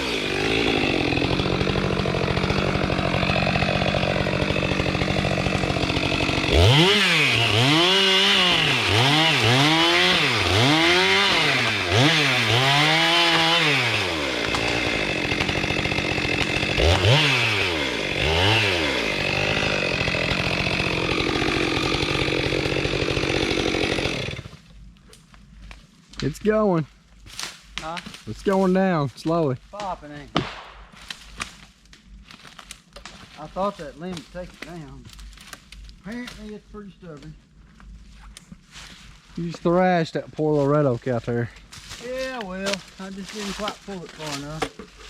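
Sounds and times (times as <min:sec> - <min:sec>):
chainsaw cutting tree: 0:00.0 - 0:25.3, 0:42.0 - 0:45.0.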